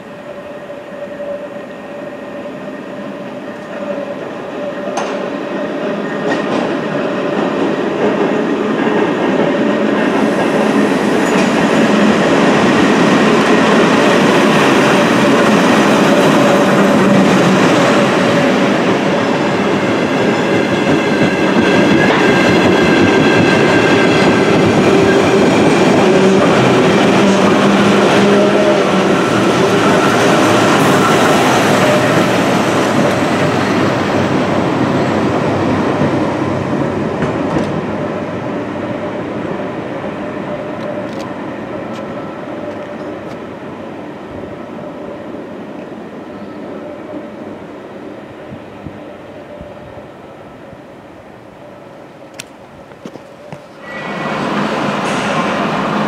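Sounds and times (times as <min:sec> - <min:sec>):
locomotive whine: 0:00.0 - 0:56.0
train wheels clattering on rails: 0:04.8 - 0:38.0, 0:52.3 - 0:56.0.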